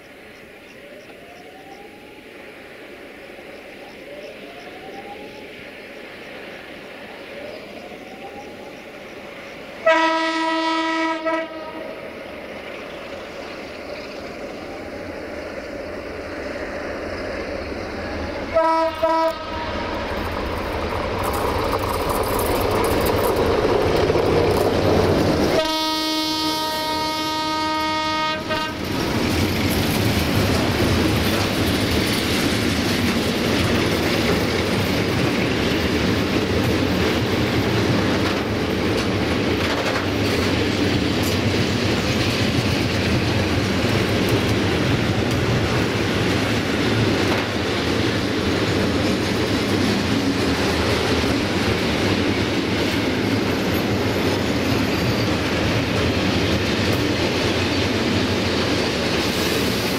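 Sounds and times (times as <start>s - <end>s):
train rumbling past: 0.0s - 59.9s
train horn blast: 9.8s - 11.9s, 18.5s - 20.0s, 25.4s - 28.9s.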